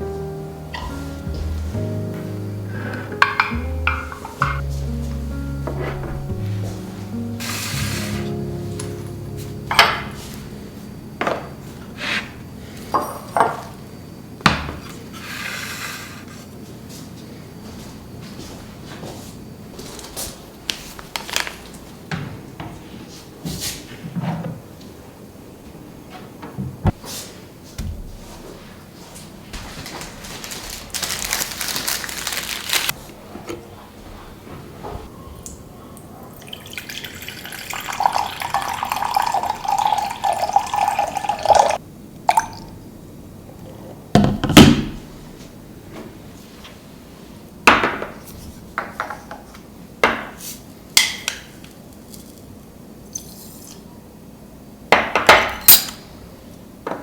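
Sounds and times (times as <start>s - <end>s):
tap water running into container: 36.3s - 42.7s.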